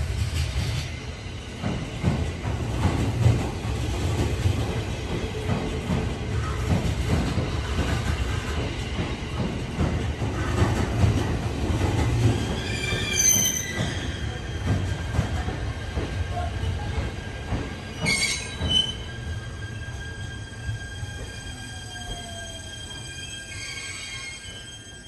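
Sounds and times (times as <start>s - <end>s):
train rumbling: 0.0s - 25.0s
high-pitched wheel squeals: 12.3s - 14.6s, 17.9s - 25.0s.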